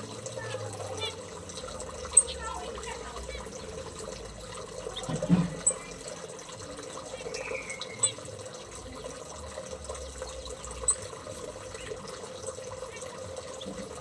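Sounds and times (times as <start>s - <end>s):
running water trickling: 0.0s - 14.0s
high bird chirps: 7.1s - 8.3s.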